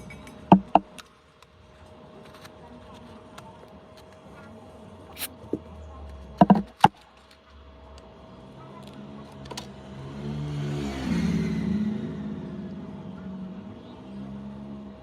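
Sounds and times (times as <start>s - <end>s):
sharp clicks and taps: 0.0s - 1.5s, 6.4s - 7.0s
vehicle engine approaching: 7.6s - 15.0s.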